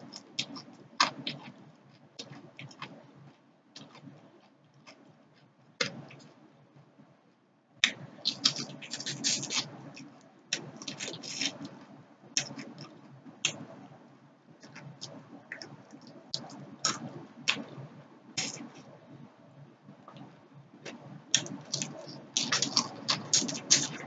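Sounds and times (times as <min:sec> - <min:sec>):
soft chewing: 0:00.0 - 0:06.5, 0:07.3 - 0:13.8, 0:20.0 - 0:24.0
crunching fried fish: 0:07.9 - 0:11.8, 0:20.9 - 0:24.0.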